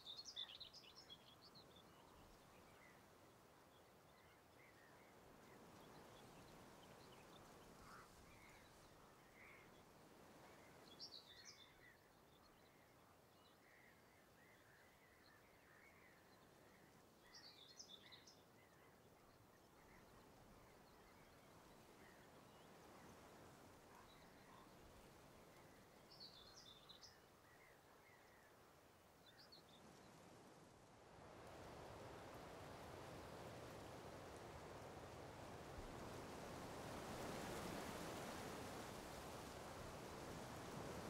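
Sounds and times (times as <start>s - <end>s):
small birds chirping: 0.0s - 28.5s.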